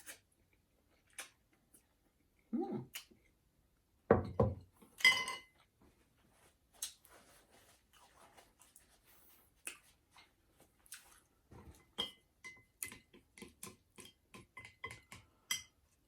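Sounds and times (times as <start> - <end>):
chewing: 0.0 - 2.0, 6.7 - 11.9.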